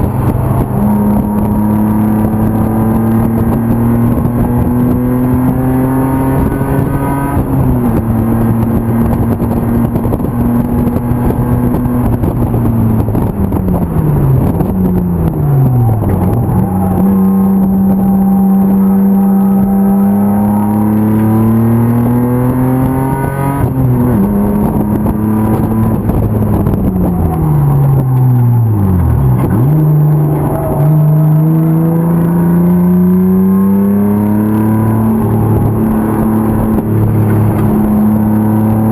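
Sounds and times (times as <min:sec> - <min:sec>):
race car engine at high revs: 0:00.0 - 0:38.9.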